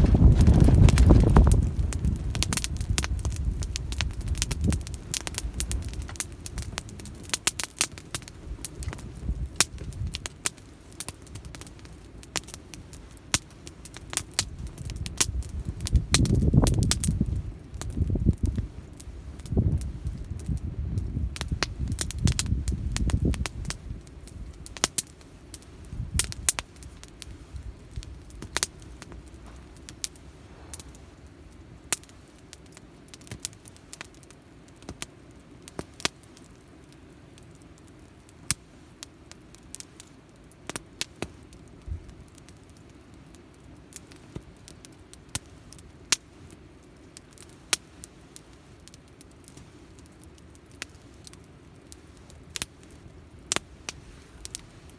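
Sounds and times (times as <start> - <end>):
low rumble: 0.0 - 7.4, 27.5 - 31.8
campfire crackling and popping: 0.0 - 54.9.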